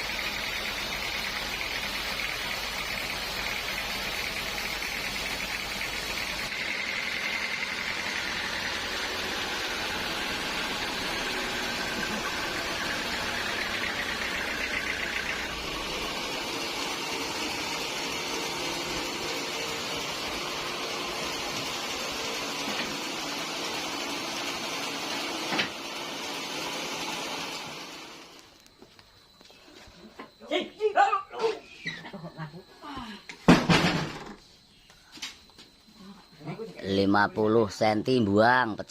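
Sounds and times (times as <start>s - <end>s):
sawmill saw whirring through log: 0.0s - 28.4s
high-pitched saw whine: 1.0s - 24.9s.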